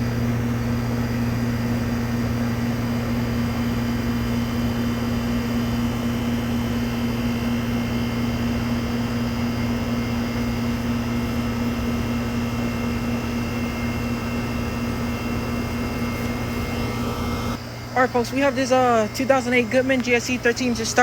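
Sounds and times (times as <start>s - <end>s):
air conditioner unit humming: 0.0s - 21.0s.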